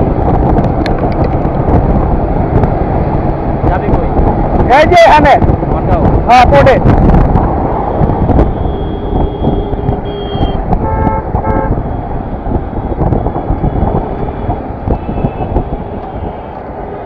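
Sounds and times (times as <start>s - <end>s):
motorcycle wind and road rumble: 0.0s - 17.0s
vehicle horn tooting: 7.9s - 11.8s, 14.9s - 16.5s.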